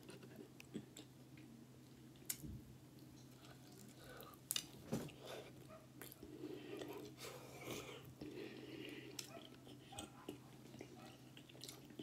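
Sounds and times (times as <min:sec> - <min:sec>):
chewing and biting pizza: 0:06.0 - 0:12.0.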